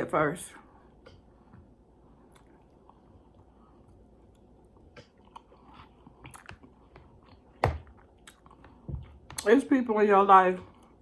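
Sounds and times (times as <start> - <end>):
person chewing food: 0.9 - 9.4.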